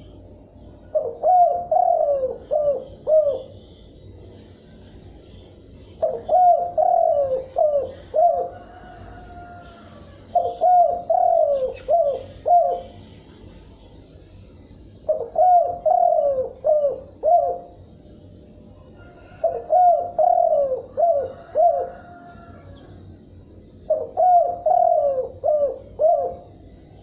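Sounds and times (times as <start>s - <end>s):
dove cooing: 0.8s - 3.7s, 6.0s - 13.1s, 15.0s - 17.9s, 18.8s - 27.0s.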